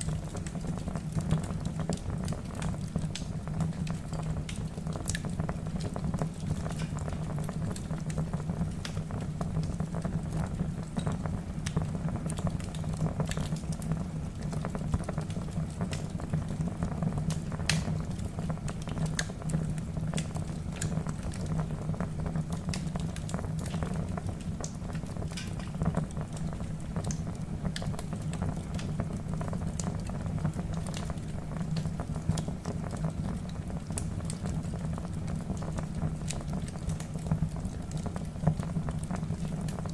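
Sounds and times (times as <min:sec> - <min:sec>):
low rumble of flames: 0:00.0 - 0:39.9
logs crackling and snapping: 0:00.1 - 0:09.8, 0:17.3 - 0:21.5, 0:22.5 - 0:23.9, 0:24.6 - 0:29.0, 0:29.7 - 0:32.7.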